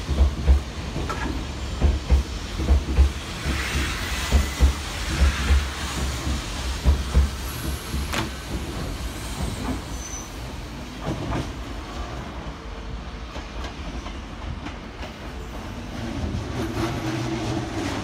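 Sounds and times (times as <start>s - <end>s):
wheels clacking over rail joints: 0.0s - 3.6s
train rumble: 0.0s - 18.0s.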